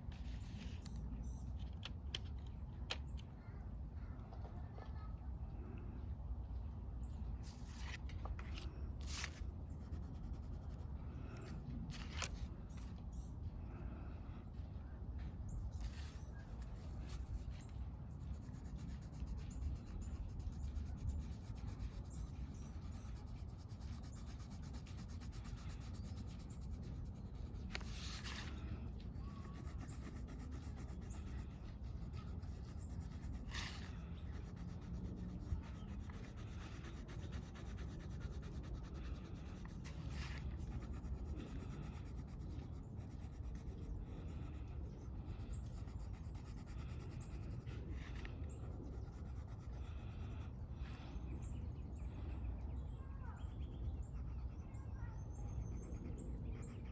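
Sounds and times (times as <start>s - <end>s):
drawing tool scratching on paper: 9.0s - 12.4s, 15.8s - 50.6s.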